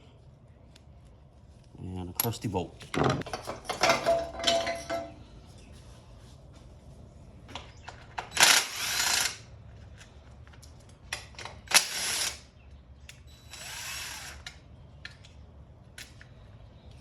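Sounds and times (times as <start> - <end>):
power tool motor whirring: 8.4 - 9.4, 13.4 - 14.6
small clicks of parts and tools: 9.7 - 11.8, 13.0 - 13.3, 14.3 - 16.4.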